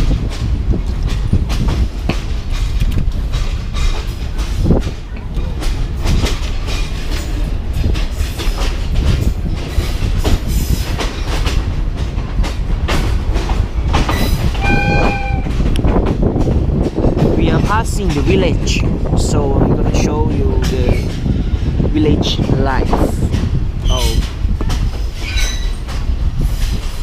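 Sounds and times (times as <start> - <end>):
train wheels clattering on rails: 0.0 - 27.0
train horn blast: 14.6 - 15.6.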